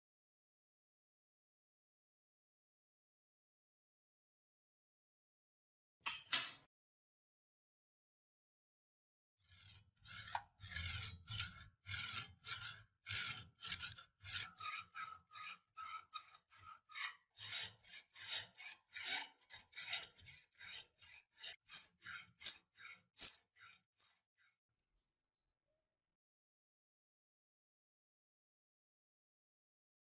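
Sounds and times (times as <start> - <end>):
file scraping on metal: 9.4 - 24.5.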